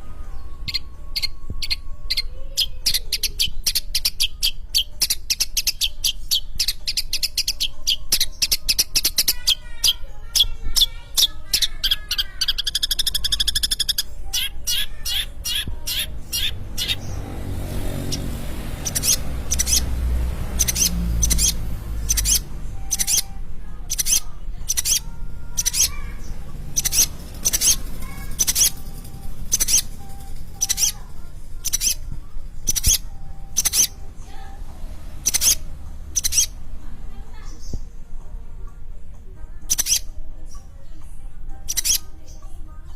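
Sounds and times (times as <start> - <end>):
bird chirping and warbling: 0.0 - 38.8, 39.5 - 42.9.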